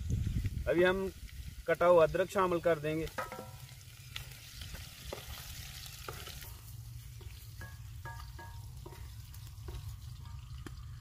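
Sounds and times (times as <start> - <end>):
onions sizzling in oil: 0.0 - 11.0
wooden spoon knocking against pot: 3.2 - 3.6, 7.2 - 10.7.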